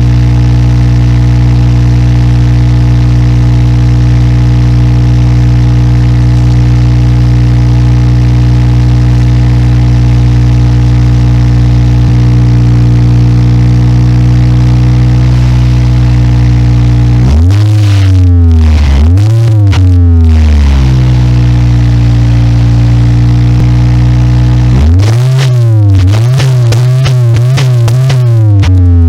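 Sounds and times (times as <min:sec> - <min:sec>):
car engine idling: 0:00.0 - 0:29.0
engine revving: 0:04.4 - 0:29.0.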